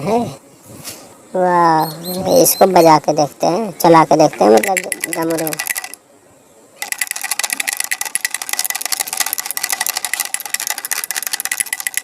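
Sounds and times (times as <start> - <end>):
pellet drum clicking: 4.6 - 6.0, 6.8 - 12.0.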